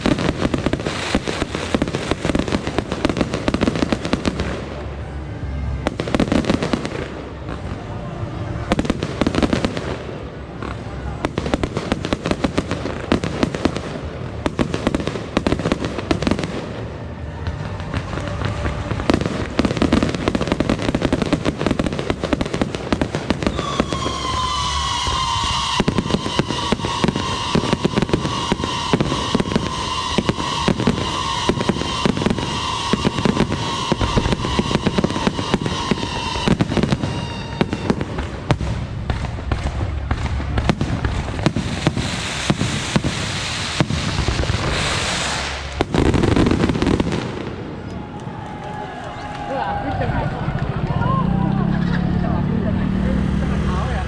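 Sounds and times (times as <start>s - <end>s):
firecrackers crackling: 0.0s - 54.0s
shrill wavering firework whistle: 23.2s - 38.5s, 41.8s - 50.0s.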